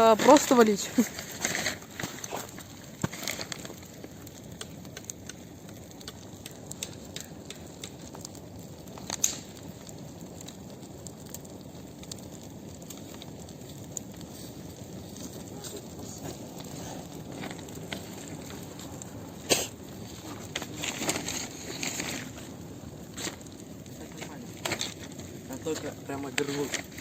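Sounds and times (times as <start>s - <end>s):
bonfire crackling and popping: 0.0s - 27.0s
rushing hiss: 19.4s - 22.4s.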